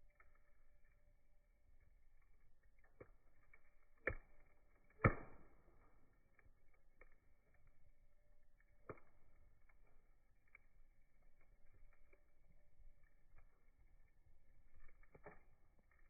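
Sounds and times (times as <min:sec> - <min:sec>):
campfire wood crackling: 0:00.0 - 0:16.0
sharp pops of burning wood: 0:02.7 - 0:07.9, 0:08.5 - 0:16.0.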